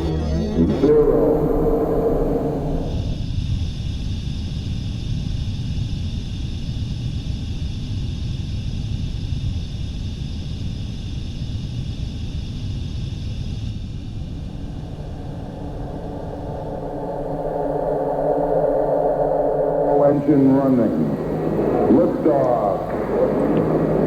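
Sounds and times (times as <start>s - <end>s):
deep steady rumble: 0.0s - 3.2s, 13.7s - 24.0s
high steady tones: 0.0s - 3.2s, 14.3s - 24.0s.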